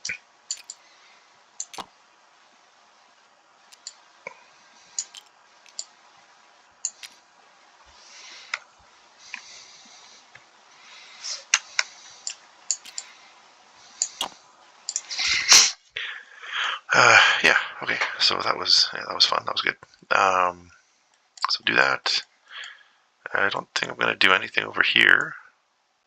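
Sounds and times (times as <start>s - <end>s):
plastic game pieces clicking: 0.5s - 0.8s.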